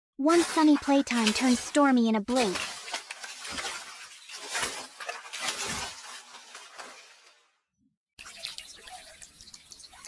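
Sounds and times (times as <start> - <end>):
clattering and clinking: 2.4 - 7.3.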